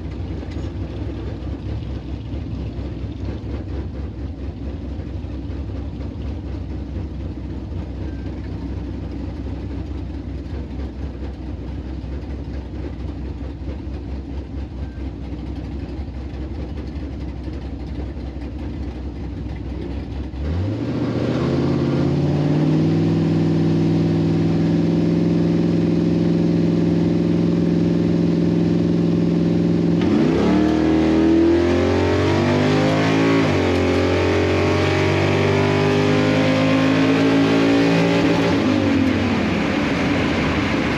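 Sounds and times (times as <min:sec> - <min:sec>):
car engine rumbling and revving: 0:00.0 - 0:40.9.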